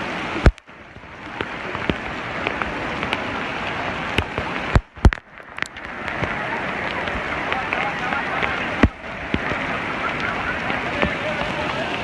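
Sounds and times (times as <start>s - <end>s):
heavy rain pouring: 0.0s - 12.0s
sharp drop clicks: 0.4s - 0.7s, 4.2s - 5.9s.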